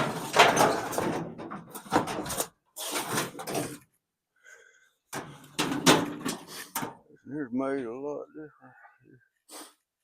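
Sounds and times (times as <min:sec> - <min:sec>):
metal parts rattling and scraping: 0:00.0 - 0:03.9, 0:05.2 - 0:06.9.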